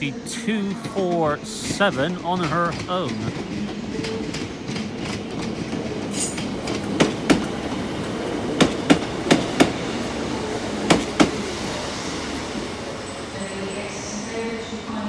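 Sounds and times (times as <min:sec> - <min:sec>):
diesel train engine hum: 0:00.0 - 0:15.0
train wheels clicking over rail joint: 0:00.8 - 0:11.6.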